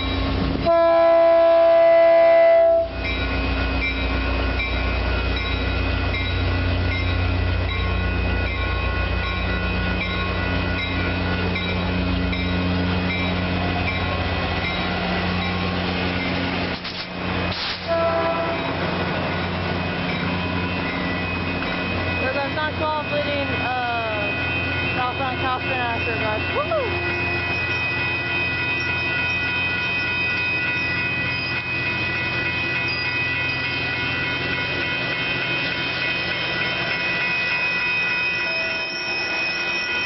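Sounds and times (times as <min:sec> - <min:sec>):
locomotive engine rumble: 0:00.0 - 0:39.4
rail noise: 0:00.0 - 0:40.0
train horn blast: 0:00.6 - 0:03.0, 0:17.8 - 0:18.8.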